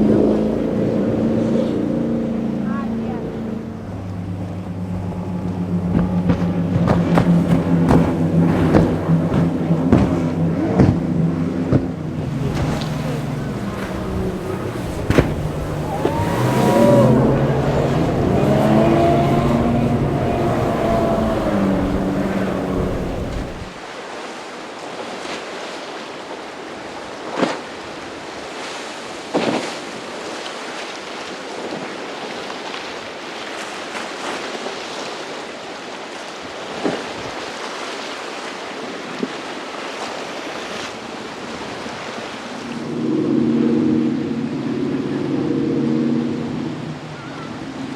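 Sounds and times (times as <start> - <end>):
motorboat engine running: 0.0 - 23.8, 40.3 - 47.9
surf rushing: 0.0 - 24.1
wind: 0.0 - 47.9.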